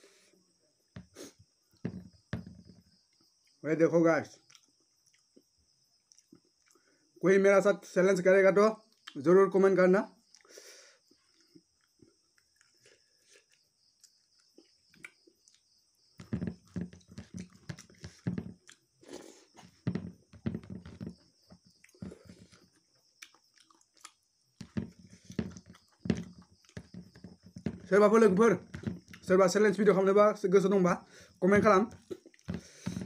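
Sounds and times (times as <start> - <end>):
person chewing meat: 21.8 - 24.2, 32.0 - 32.8.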